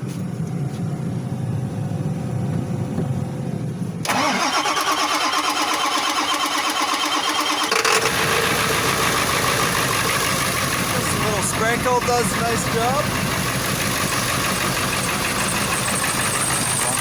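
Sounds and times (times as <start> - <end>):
engine running: 0.0 - 17.0
engine cranking on starter: 4.0 - 17.0.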